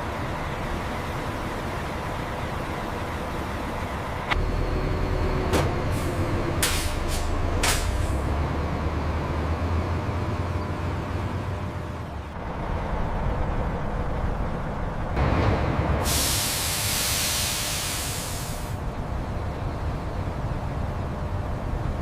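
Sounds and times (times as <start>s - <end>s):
large vehicle engine rumble: 0.0s - 22.0s
loud rush of hiss: 16.0s - 18.8s.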